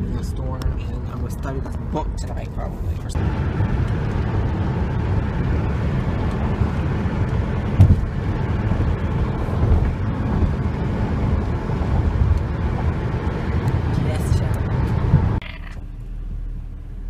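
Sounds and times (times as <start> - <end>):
car road and engine rumble: 0.0 - 17.0
short thump: 7.8 - 8.1.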